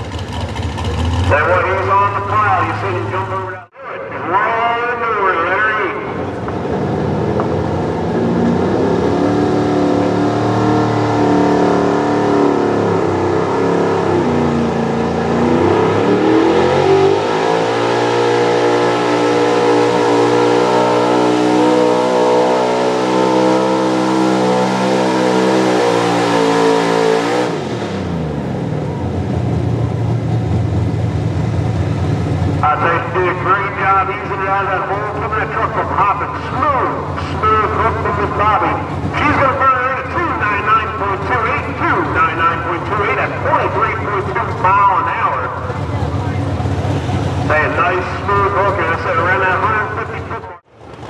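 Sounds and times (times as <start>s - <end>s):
diesel truck engine at full throttle: 0.0s - 51.0s.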